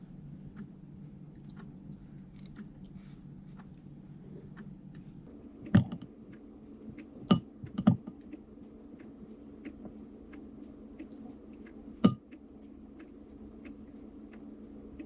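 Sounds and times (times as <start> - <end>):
low steady hum: 5.3 - 15.0
small clicks and taps: 5.4 - 15.0
sharp knocks: 5.6 - 6.0.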